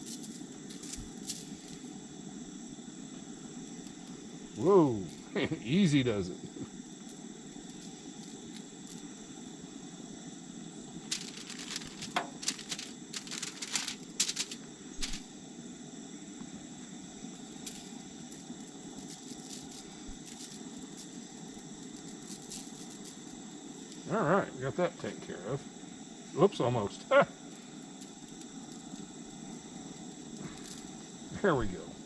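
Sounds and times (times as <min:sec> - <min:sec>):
crickets chirring: 0:00.0 - 0:32.0
handling clicks and rattles: 0:11.1 - 0:15.2.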